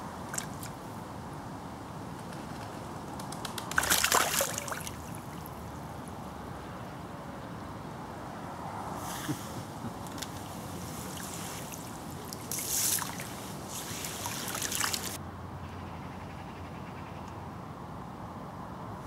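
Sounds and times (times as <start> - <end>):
river water running: 0.0 - 2.2, 3.6 - 15.3.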